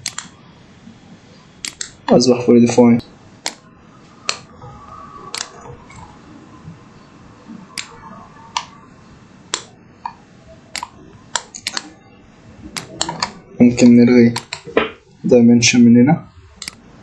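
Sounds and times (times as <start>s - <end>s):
computer mouse clicks: 0.0s - 0.3s, 1.6s - 2.0s, 5.3s - 6.0s, 9.5s - 11.9s, 12.8s - 13.4s, 14.4s - 14.6s, 16.6s - 16.8s.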